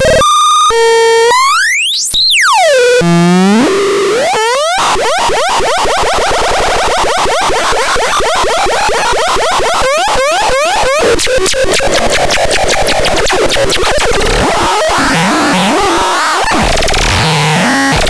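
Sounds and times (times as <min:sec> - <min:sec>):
harsh pulsing synthesizer buzz: 0:11.0 - 0:18.0.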